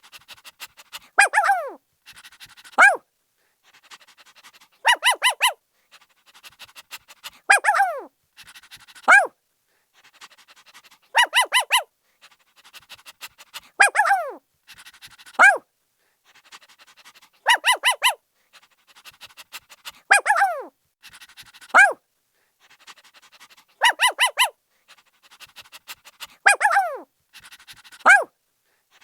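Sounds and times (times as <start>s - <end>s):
puppy barking in high yips: 1.2s - 1.8s, 2.8s - 3.0s, 4.8s - 5.6s, 7.5s - 8.1s, 9.1s - 9.3s, 11.1s - 11.9s, 13.8s - 14.4s, 15.4s - 15.6s, 17.4s - 18.2s, 20.1s - 20.7s, 21.7s - 22.0s, 23.8s - 24.6s, 26.4s - 27.1s, 28.0s - 28.3s.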